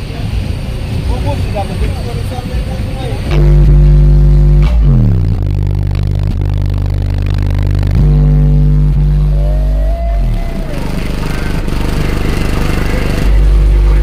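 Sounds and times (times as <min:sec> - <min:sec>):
deep bass music from subwoofers: 0:03.2 - 0:14.0
gliding synth line: 0:03.3 - 0:14.0.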